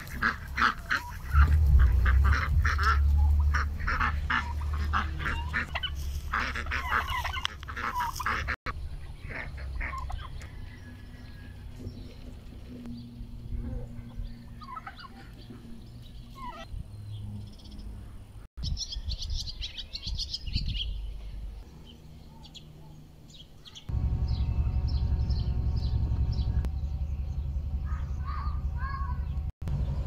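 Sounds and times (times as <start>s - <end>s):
birds chirping: 0.0s - 30.0s
low rumble: 0.3s - 6.8s, 23.9s - 30.0s.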